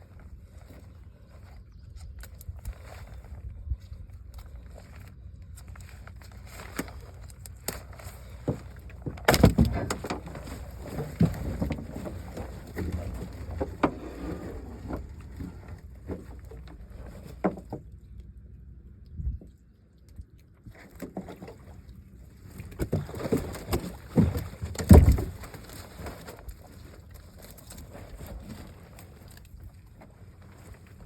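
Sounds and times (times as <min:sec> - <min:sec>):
steady low rumble: 0:00.0 - 0:17.0
knocks and clatter on boat: 0:06.3 - 0:18.0, 0:20.7 - 0:31.0.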